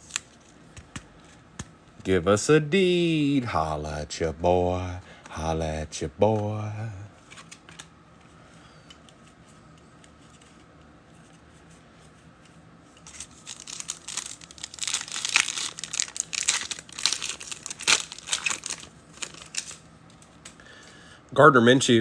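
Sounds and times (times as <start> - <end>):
plastic wrapper crinkling: 13.0 - 20.5.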